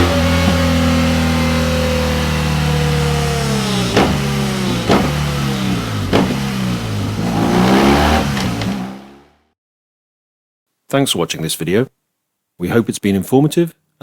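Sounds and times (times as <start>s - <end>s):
exhaust cracks: 0.0s - 9.3s
motorcycle engine revving: 0.0s - 9.5s.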